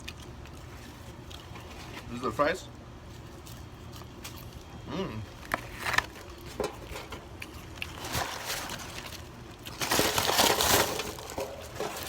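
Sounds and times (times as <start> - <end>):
packaging rustling: 7.9 - 12.0.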